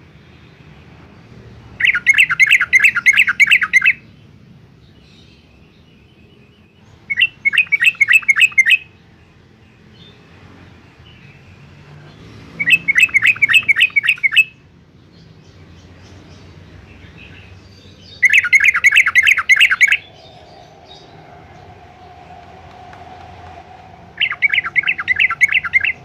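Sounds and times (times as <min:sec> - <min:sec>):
bird chattering song: 0:01.8 - 0:04.0, 0:06.8 - 0:08.9, 0:12.6 - 0:14.6, 0:15.2 - 0:26.0.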